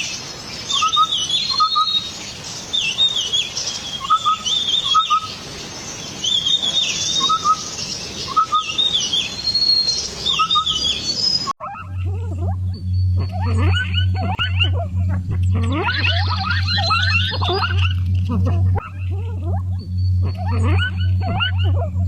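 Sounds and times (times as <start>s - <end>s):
steady low hum: 0.0s - 22.0s
rapid falling chirps: 0.6s - 22.0s
bird two-part call: 6.2s - 22.0s.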